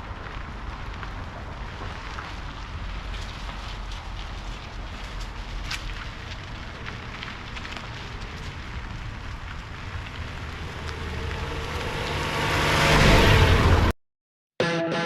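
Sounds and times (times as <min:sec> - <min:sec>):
crackles and clicks: 0:00.0 - 0:13.9
low rumble: 0:05.9 - 0:14.0
music: 0:14.6 - 0:15.0.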